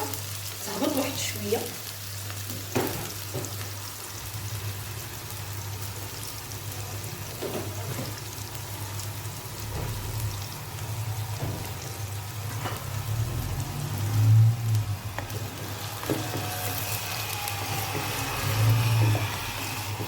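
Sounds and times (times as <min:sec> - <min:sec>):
onion sizzling in hot oil: 0:00.0 - 0:20.0.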